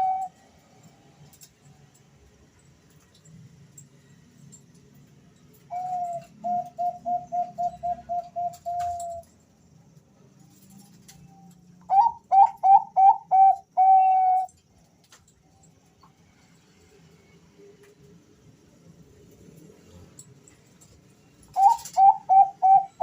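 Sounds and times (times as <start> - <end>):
doves cooing: 5.7 - 9.3, 11.9 - 14.5, 21.5 - 23.0.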